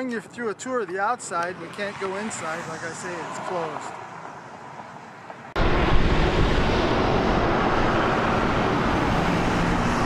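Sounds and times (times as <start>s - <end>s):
loud steady rumbling: 5.6s - 10.0s.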